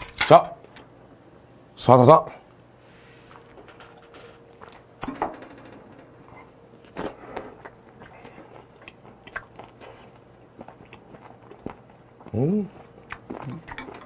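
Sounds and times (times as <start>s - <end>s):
man chewing and smacking: 6.8s - 14.0s.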